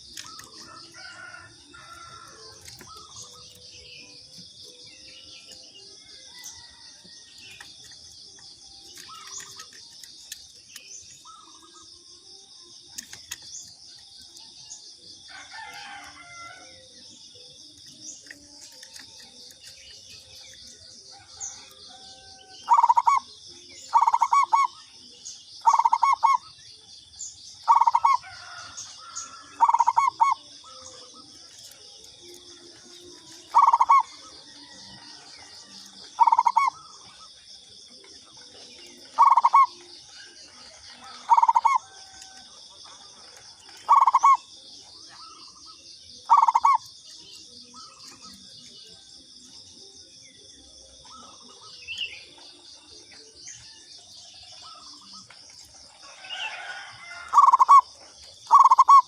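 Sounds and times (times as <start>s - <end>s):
dove cooing: 21.1s - 24.9s, 25.6s - 26.6s, 27.6s - 37.3s, 38.0s - 48.4s, 56.1s - 59.0s.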